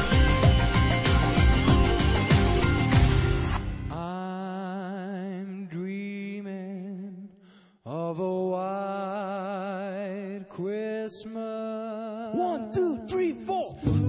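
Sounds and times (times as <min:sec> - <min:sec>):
men singing a cappella: 0:07.9 - 0:14.0.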